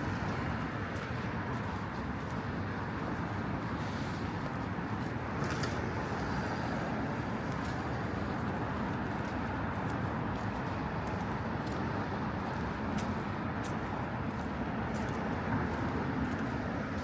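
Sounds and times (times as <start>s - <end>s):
cars passing on busy street: 0.0s - 17.0s.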